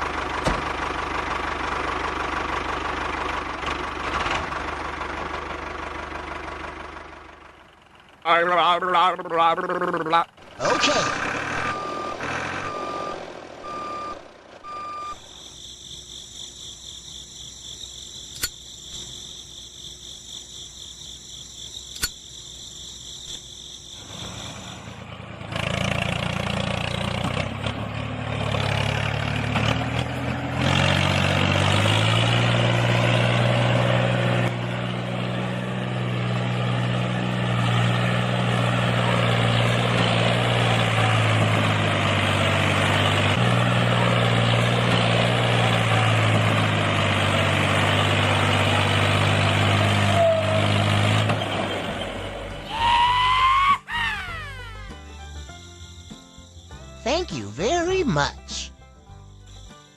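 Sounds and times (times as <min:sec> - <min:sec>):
engine hum: 0:00.0 - 0:59.9
reversing beeps: 0:11.6 - 0:15.2.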